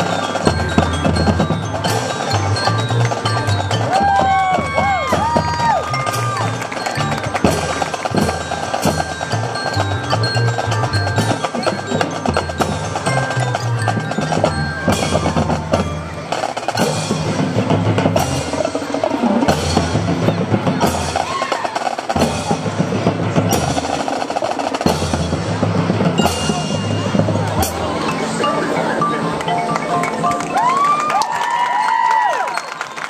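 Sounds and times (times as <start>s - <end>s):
marching band brass: 0.0s - 28.9s
mallet percussion: 0.0s - 32.9s.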